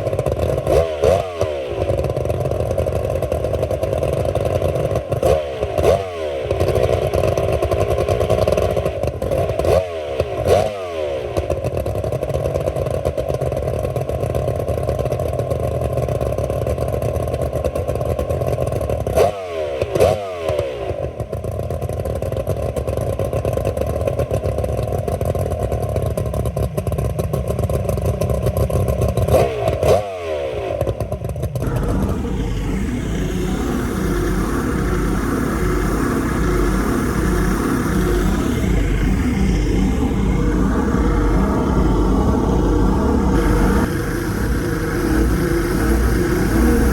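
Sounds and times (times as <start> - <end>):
outboard motor chugging: 31.1 - 46.9.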